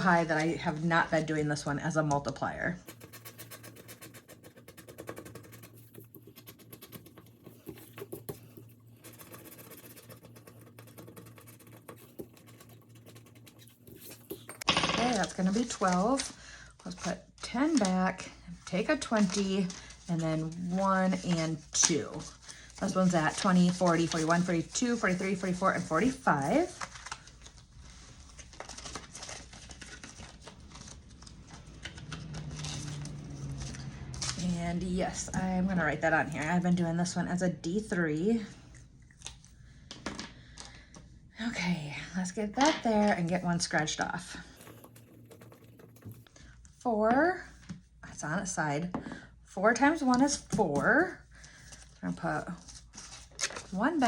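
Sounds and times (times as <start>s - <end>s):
paper cash rustling: 2.8s - 16.2s, 22.2s - 34.4s, 44.5s - 46.3s.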